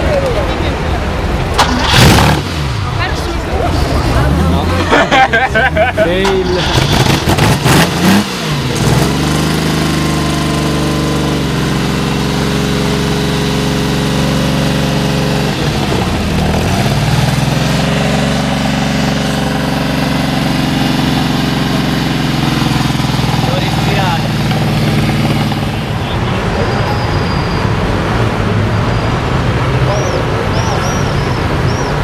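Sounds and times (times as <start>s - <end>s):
car engine revving: 1.2s - 32.0s
exhaust cracks: 6.2s - 12.1s, 13.4s - 26.1s.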